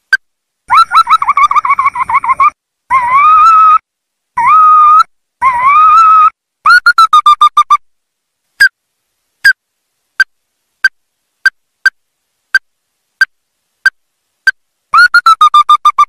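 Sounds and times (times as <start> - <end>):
bird calling sharp notes: 5.7 - 7.8, 15.0 - 16.0.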